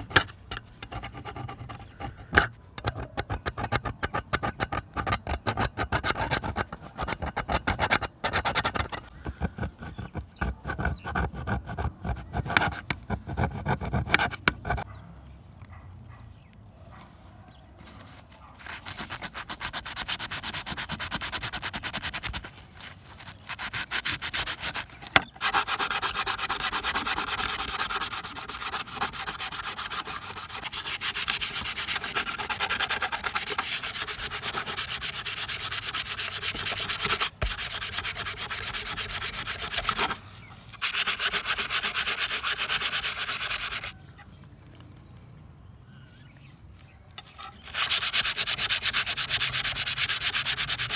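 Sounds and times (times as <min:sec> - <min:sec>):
sanding a steel knife blade: 0:09.8 - 0:14.8, 0:18.6 - 0:22.5, 0:23.2 - 0:40.2, 0:40.8 - 0:43.9, 0:47.2 - 0:50.9.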